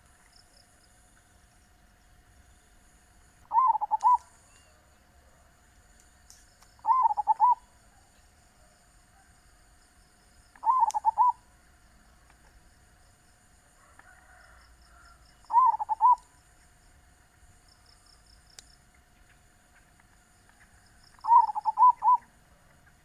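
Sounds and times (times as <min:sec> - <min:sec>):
dove cooing: 0:03.5 - 0:04.2, 0:06.8 - 0:07.6, 0:10.6 - 0:11.4, 0:15.0 - 0:16.3, 0:21.2 - 0:22.4.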